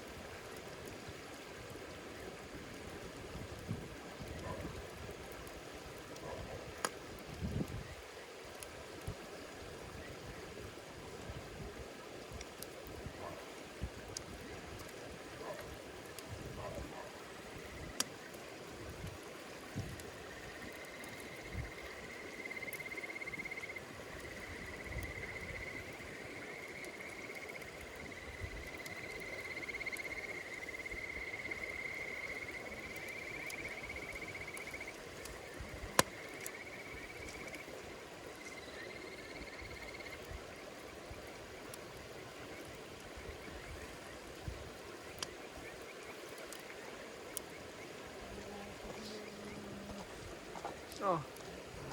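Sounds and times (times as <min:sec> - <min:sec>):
campfire crackling and popping: 0:00.0 - 0:51.9
insect trilling: 0:20.3 - 0:37.7.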